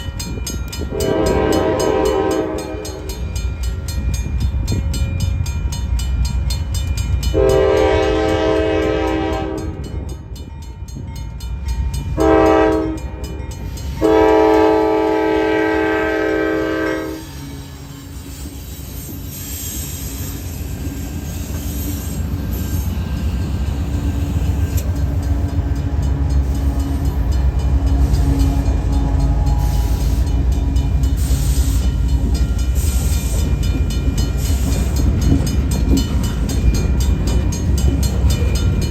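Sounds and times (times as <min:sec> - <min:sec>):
train rumbling: 0:00.0 - 0:38.9
locomotive air horn blasts: 0:00.9 - 0:03.2, 0:07.3 - 0:09.8, 0:12.2 - 0:13.1, 0:14.0 - 0:18.1, 0:25.7 - 0:31.9.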